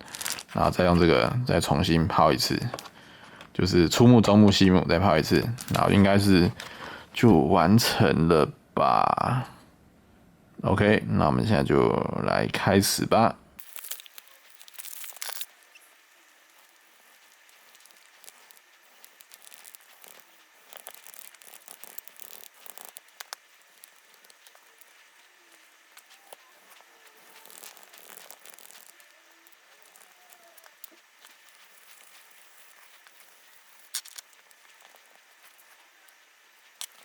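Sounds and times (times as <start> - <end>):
sanding pad rubbing plastic: 15.7 - 37.0.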